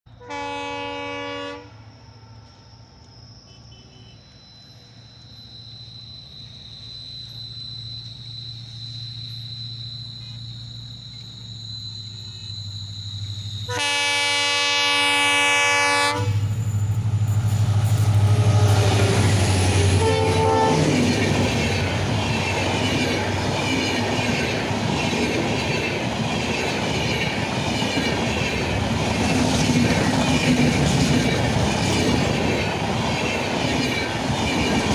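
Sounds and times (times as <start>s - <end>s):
train horn blasts: 0.1s - 1.9s, 13.7s - 16.5s, 18.0s - 22.1s
train coaches rumbling past: 0.1s - 34.9s
wheels squealing: 15.0s - 34.9s.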